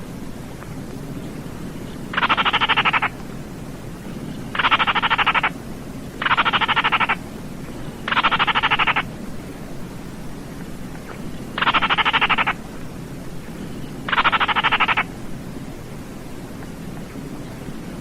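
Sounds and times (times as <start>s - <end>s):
bird rattling call: 2.1s - 3.2s, 4.3s - 5.6s, 6.2s - 7.2s, 7.8s - 9.1s, 11.1s - 12.6s, 13.8s - 15.1s.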